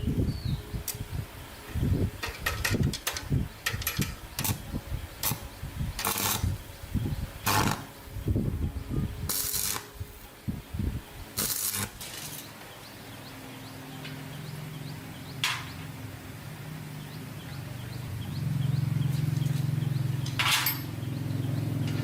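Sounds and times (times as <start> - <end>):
scraping strokes on metal: 5.2 - 6.6, 9.3 - 10.2
metal parts clinking and knocking: 20.2 - 21.0.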